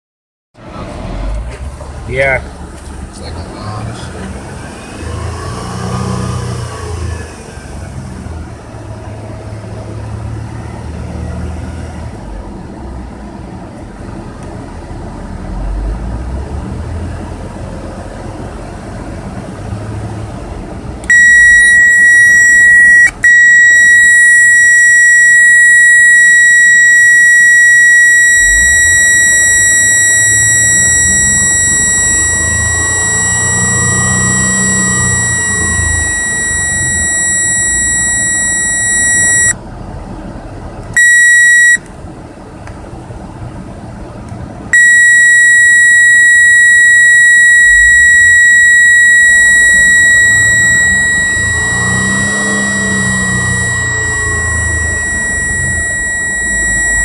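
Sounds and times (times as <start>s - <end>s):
car engine rumbling: 12.0s - 40.9s
high-pitched electronic tone: 21.1s - 39.5s, 41.0s - 41.8s, 44.8s - 57.0s.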